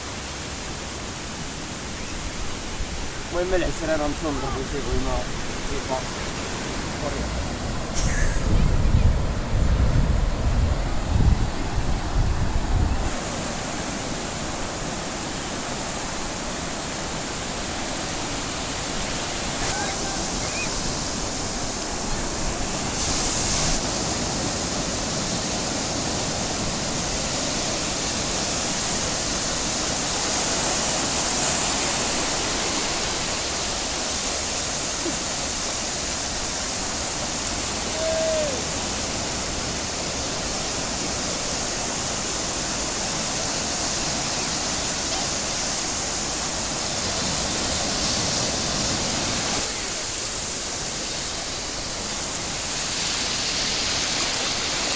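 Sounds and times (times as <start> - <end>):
ocean surf breaking on beach: 0.0 - 54.9.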